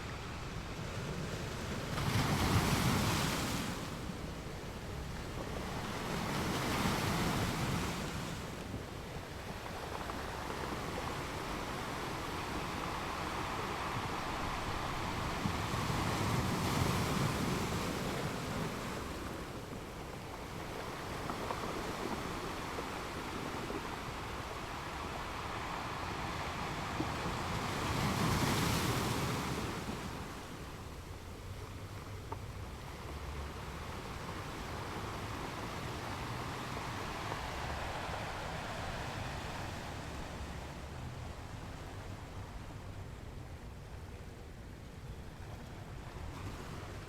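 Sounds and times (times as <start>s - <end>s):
small waves washing onto beach: 0.0s - 47.0s.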